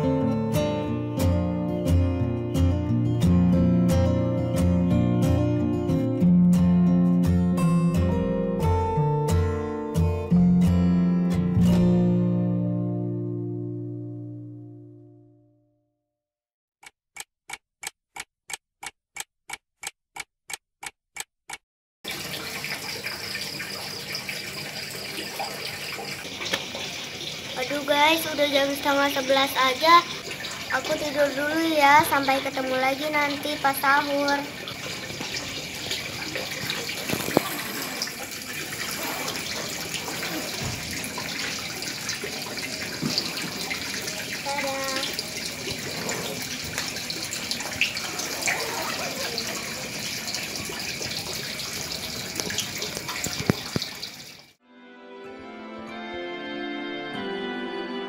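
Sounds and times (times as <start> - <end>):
guitar chord: 0.0 - 15.4
clock ticking rapidly: 16.8 - 21.6.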